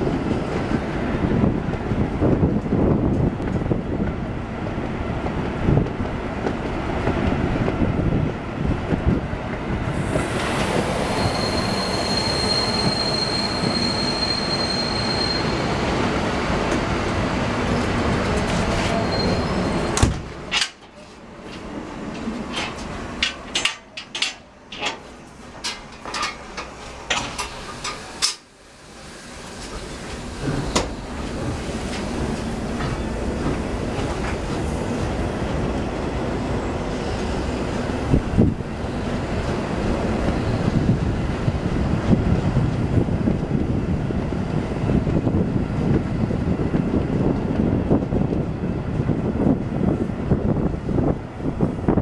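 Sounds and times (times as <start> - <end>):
train rolling rumble: 0.0 - 52.0
high wheel squeal: 10.6 - 15.9, 18.7 - 20.0
wheels clicking on rails: 20.5 - 28.5.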